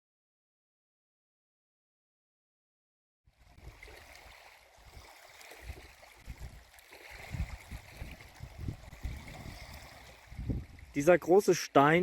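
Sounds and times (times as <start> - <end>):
sea waves rushing: 3.5 - 12.0
wind buffeting microphone: 4.8 - 11.1.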